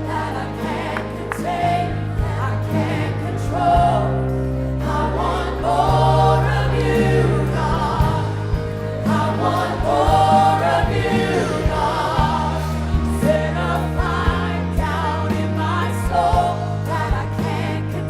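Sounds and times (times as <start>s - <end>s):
choir singing slow song: 0.0s - 18.0s
sustained keyboard and bass: 0.0s - 18.0s.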